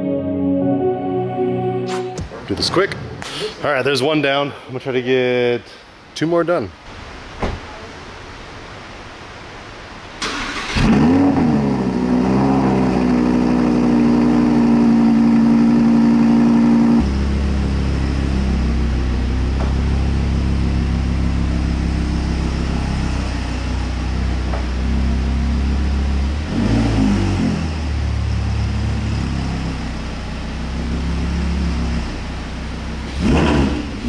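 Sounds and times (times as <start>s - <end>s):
car engine fast idle: 10.2s - 11.5s.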